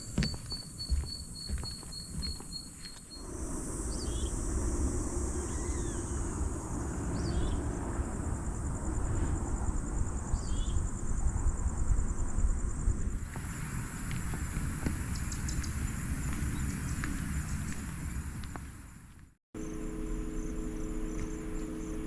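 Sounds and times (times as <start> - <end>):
bird chirps: 0.0 - 4.5, 5.2 - 7.6, 15.1 - 15.8
pulsing insect trill: 0.0 - 19.0, 19.6 - 22.0
low rumbling noise: 3.2 - 18.9.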